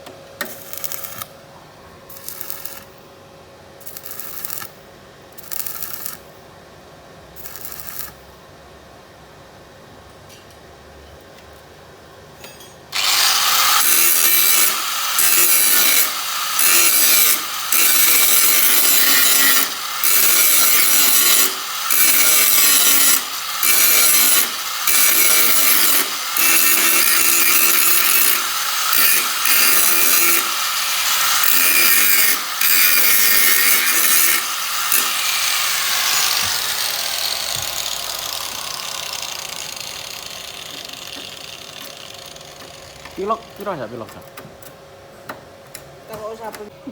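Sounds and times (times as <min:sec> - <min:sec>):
power grinder grinding steel: 0:13.0 - 0:43.7.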